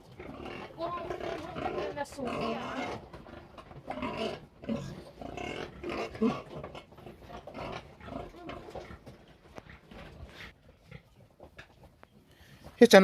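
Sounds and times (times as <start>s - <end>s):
pigs calling: 0.0s - 12.7s.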